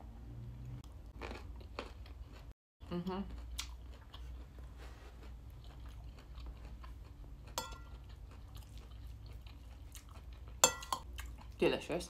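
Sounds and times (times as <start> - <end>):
close-up chewing: 3.2 - 11.6
metal spoon clinking on bowl: 7.6 - 7.9, 10.6 - 11.0.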